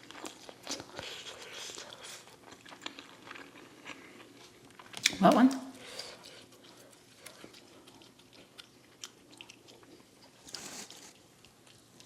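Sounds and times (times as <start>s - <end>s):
person chewing food: 0.0s - 5.1s, 5.7s - 12.0s.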